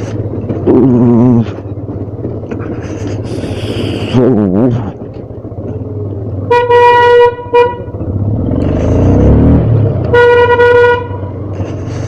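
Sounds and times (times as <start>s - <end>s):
motorcycle engine running: 0.0s - 12.0s
vehicle horn honking: 6.5s - 8.0s, 10.1s - 11.4s.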